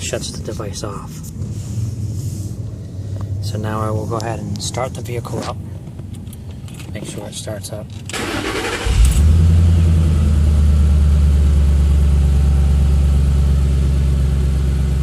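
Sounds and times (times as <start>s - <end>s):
car engine starting and idling: 7.9s - 15.0s.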